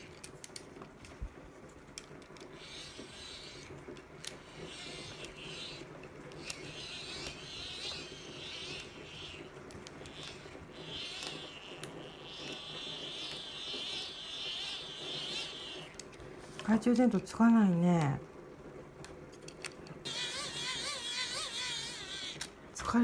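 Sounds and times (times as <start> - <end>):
hand crank dynamo whirring: 0.0 - 0.6, 2.0 - 16.2, 20.1 - 22.6.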